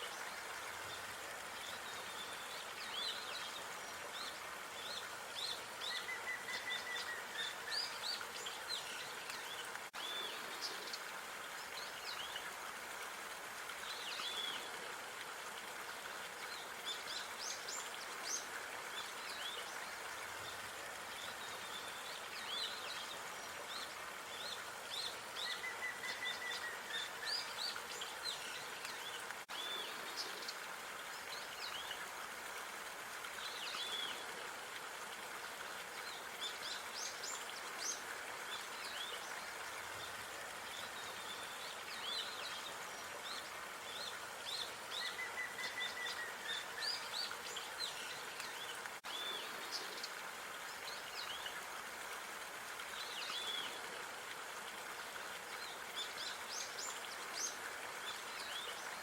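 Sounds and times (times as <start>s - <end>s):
outdoor background hiss: 0.0s - 59.0s.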